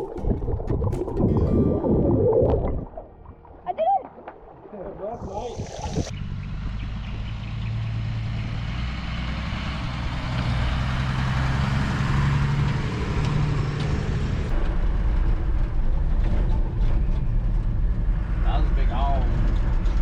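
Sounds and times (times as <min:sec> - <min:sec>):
knocks and rattles: 0:00.0 - 0:02.0
road noise: 0:00.0 - 0:20.0
truck engine hum: 0:00.0 - 0:20.0.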